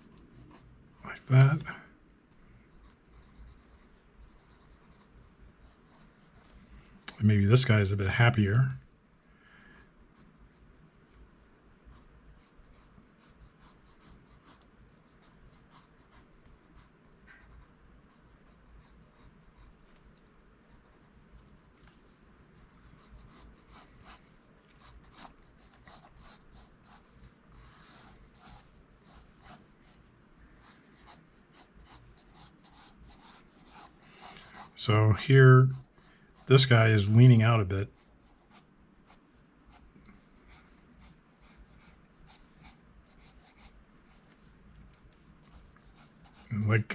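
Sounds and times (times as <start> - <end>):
pencil scratching on paper: 2.7 - 6.5, 11.9 - 19.8, 22.6 - 34.8, 37.9 - 39.8, 40.4 - 46.7.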